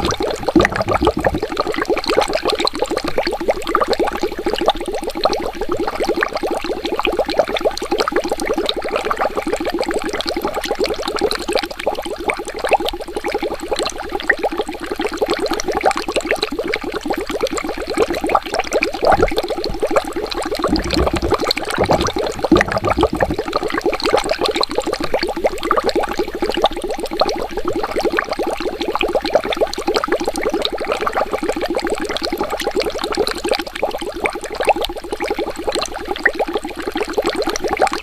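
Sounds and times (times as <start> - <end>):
low rumbles: 0.0 - 1.4, 20.6 - 23.5
water bubbling and gurgling: 0.0 - 38.0.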